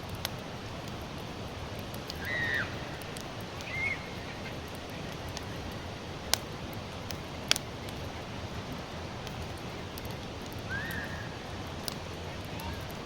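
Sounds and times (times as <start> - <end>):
campfire crackling: 0.0 - 13.0
steady fire hiss: 0.0 - 13.0
loud sharp fire pops: 1.7 - 8.0.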